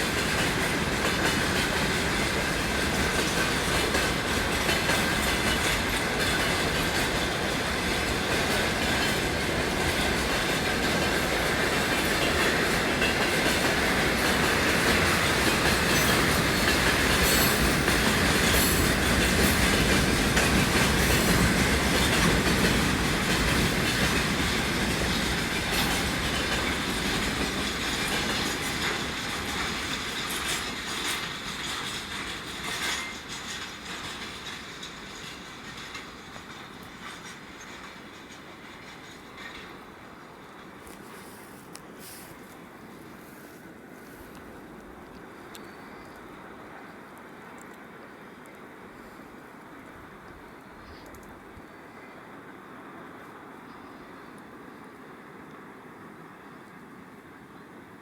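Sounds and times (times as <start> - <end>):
train wheels clacking over rail joints: 0.0 - 42.7.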